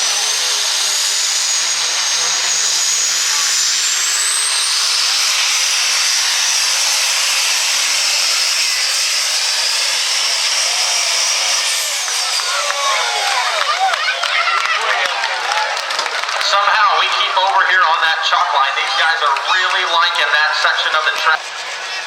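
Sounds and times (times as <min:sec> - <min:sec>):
turbocharger whistle: 0:00.0 - 0:14.5
truck engine at full throttle: 0:00.0 - 0:22.0.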